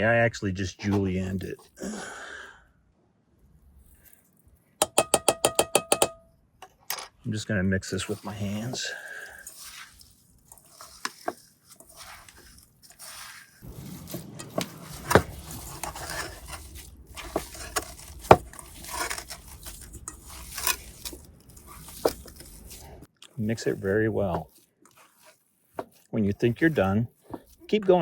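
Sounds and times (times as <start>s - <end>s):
hands squishing meat mixture: 0.8s - 1.8s, 7.3s - 28.0s.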